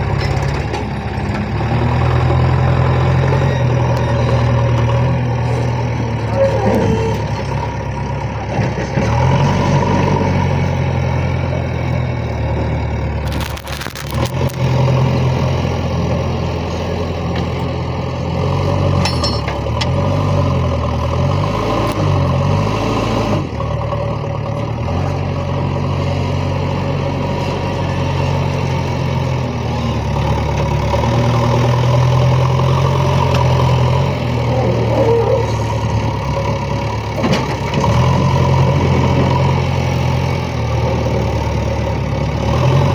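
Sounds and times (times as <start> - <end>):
diesel engines running under load: 0.0 - 42.9.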